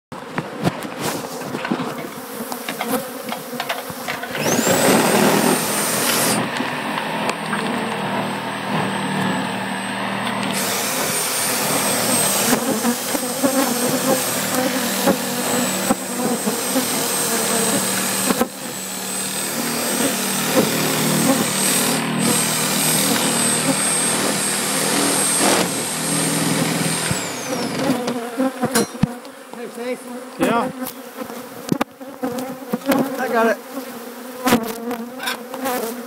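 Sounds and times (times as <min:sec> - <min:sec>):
honeybees buzzing: 0:00.2 - 0:36.0
thin high whine: 0:04.1 - 0:28.1.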